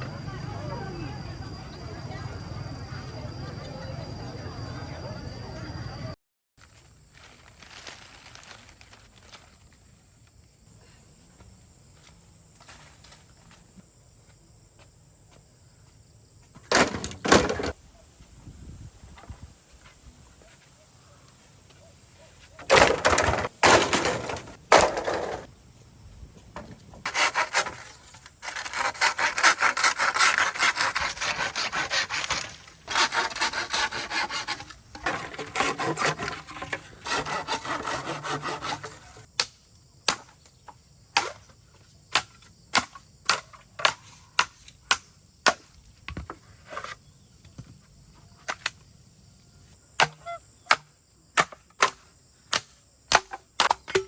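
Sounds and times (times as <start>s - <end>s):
sawing into wood: 27.0s - 39.3s.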